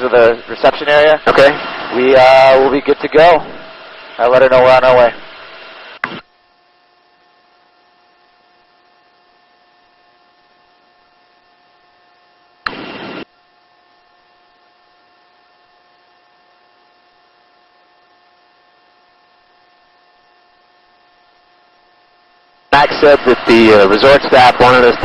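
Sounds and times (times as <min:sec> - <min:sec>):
burst of radio static: 0:00.0 - 0:06.3, 0:12.6 - 0:13.3, 0:22.7 - 0:25.0
intercom electrical hum and hiss: 0:00.0 - 0:25.0
sharp click: 0:06.0 - 0:06.3.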